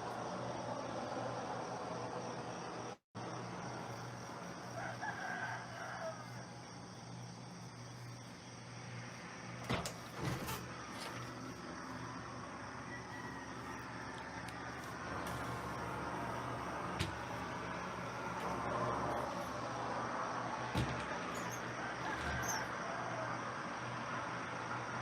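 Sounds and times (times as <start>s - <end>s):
rooster crowing: 4.5s - 8.2s, 12.0s - 19.5s, 20.3s - 23.8s.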